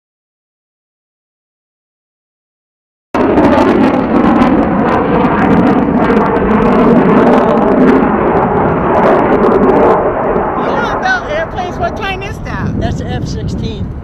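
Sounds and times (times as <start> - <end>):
jet aircraft roar: 3.2 - 14.0.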